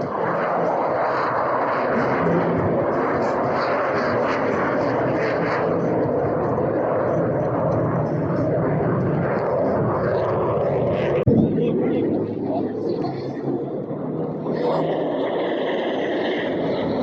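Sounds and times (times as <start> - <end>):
aircraft engine noise: 0.0 - 17.0.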